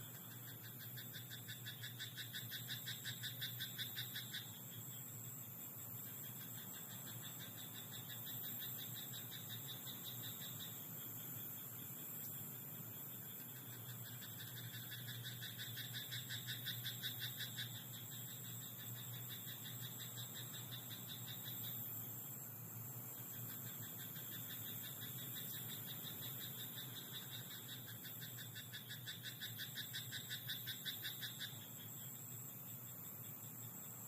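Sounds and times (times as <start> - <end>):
frog croaking: 0.0 - 4.6, 6.0 - 10.9, 13.3 - 21.8, 23.2 - 32.0
high insect trill: 0.0 - 34.0.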